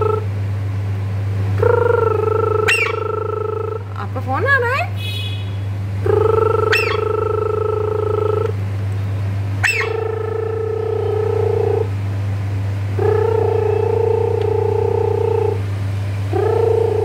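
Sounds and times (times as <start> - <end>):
sharp rising chirp: 6.4 - 8.4, 9.6 - 11.0.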